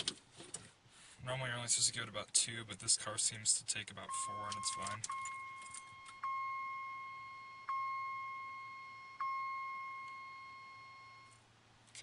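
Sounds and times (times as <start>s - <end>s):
dashboard warning chime: 4.0s - 11.4s.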